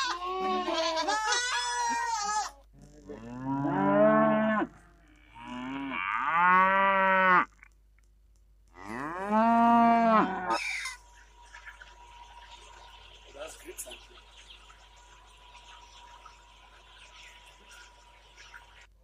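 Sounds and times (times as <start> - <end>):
goat bleating: 0.0 - 3.8
cows mooing: 2.8 - 7.6, 8.8 - 10.6.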